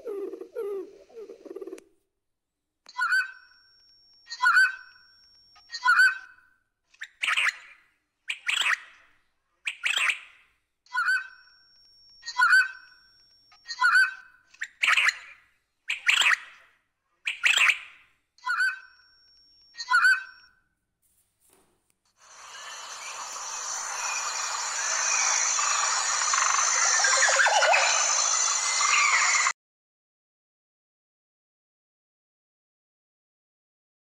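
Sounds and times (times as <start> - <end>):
bird calls: 22.5 - 29.5.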